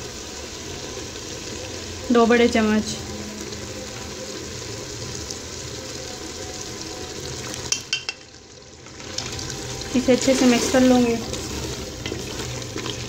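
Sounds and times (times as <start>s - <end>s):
meat sizzling in a pot: 0.0s - 13.0s
wooden spoon stirring: 10.2s - 13.0s.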